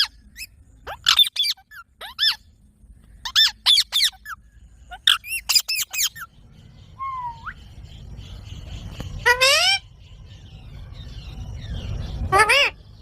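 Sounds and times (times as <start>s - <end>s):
parakeet squawking: 0.0s - 2.5s, 3.2s - 6.3s, 9.2s - 9.9s, 12.2s - 12.9s.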